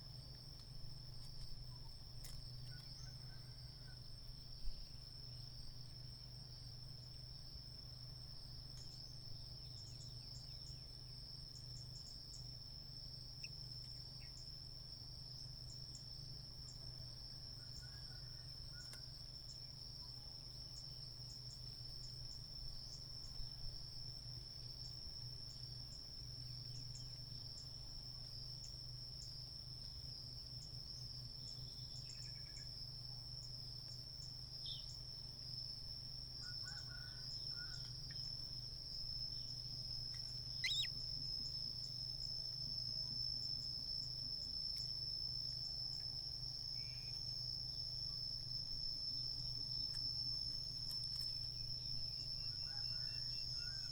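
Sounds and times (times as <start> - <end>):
high-pitched insect trill: 0.0 - 53.9
faint ticks: 2.2 - 3.0, 8.7 - 9.0, 37.7 - 38.3, 49.8 - 51.5
faint chirps: 40.2 - 41.0.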